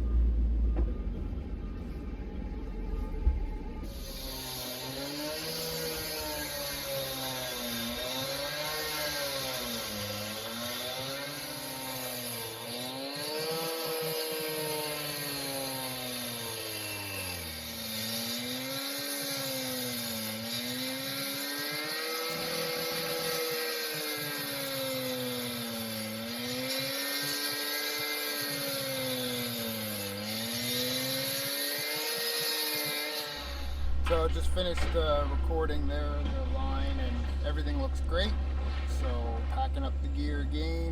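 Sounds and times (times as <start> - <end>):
excavator engine running: 0.0 - 4.6, 33.4 - 40.9.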